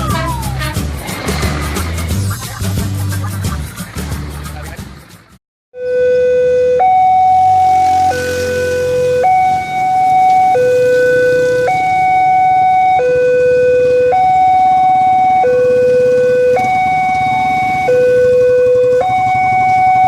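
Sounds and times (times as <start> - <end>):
level crossing two-tone alarm: 5.8 - 20.0.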